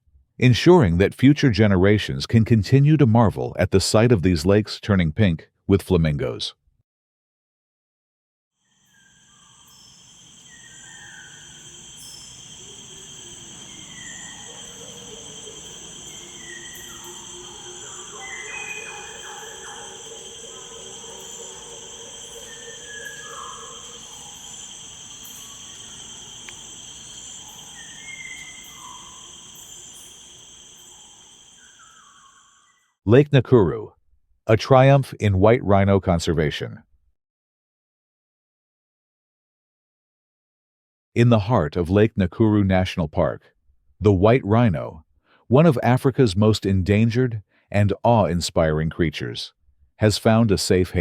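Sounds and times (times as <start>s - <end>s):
insects trilling: 8.6s - 32.8s
lower longer bird call: 9.0s - 32.7s
short falling bird calls: 9.2s - 32.7s.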